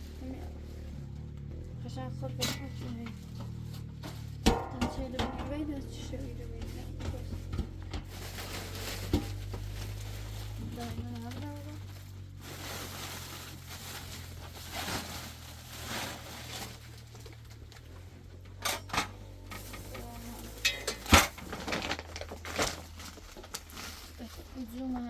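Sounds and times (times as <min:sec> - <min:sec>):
sharp knocks and clatters: 0:02.7 - 0:06.1.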